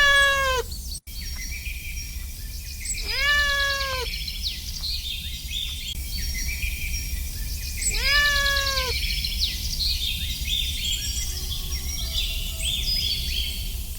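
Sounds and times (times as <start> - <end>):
kitten meowing: 0.0 - 0.7, 3.0 - 4.1, 7.9 - 9.0.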